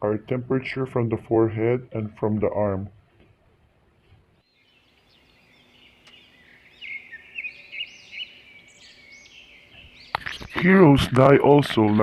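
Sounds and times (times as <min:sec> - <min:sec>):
birds chirping: 0:04.3 - 0:12.0.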